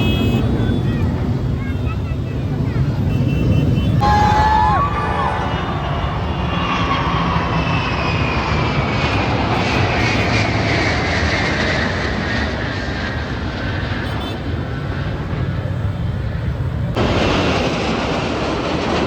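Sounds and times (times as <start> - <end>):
military aircraft flying past: 0.0 - 19.0.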